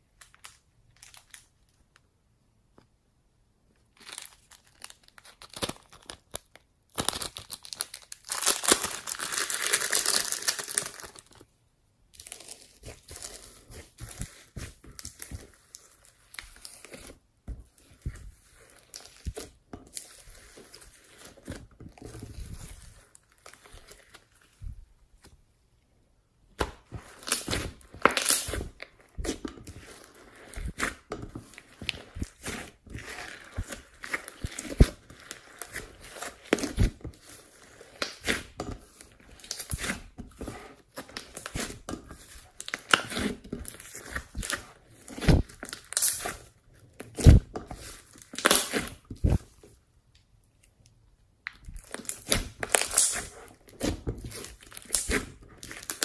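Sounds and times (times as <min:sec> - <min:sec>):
slime crackling and popping: 0:04.0 - 0:11.5, 0:26.6 - 0:49.6, 0:51.4 - 0:56.0.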